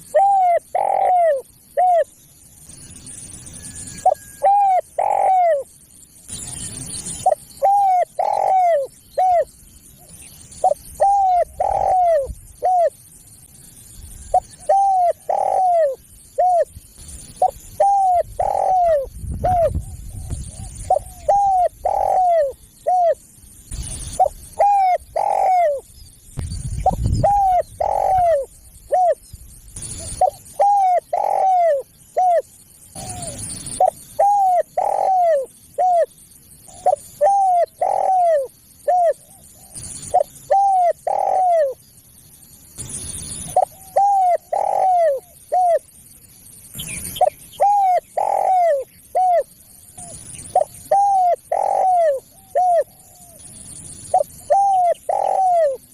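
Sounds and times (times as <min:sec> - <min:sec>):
dove cooing: 0:00.0 - 0:02.2, 0:03.5 - 0:05.7, 0:06.3 - 0:13.1, 0:14.2 - 0:25.9, 0:26.8 - 0:29.2, 0:29.8 - 0:41.8, 0:43.4 - 0:45.9, 0:47.0 - 0:55.9
low rumbles of noise: 0:16.0 - 0:25.2, 0:25.8 - 0:30.6.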